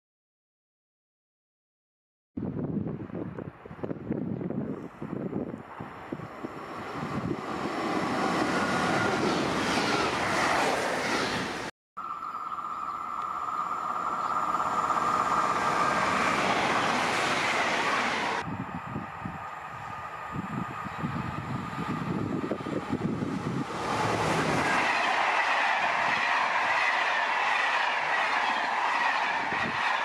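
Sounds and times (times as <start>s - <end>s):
train wheels rushing on rail: 4.7s - 11.7s, 13.4s - 30.0s
high-pitched train whine: 4.8s - 30.0s.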